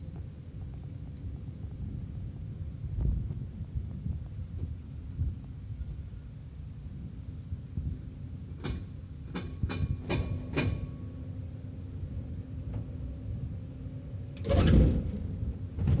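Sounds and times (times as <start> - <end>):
heavy vehicle engine running: 7.9 - 16.0.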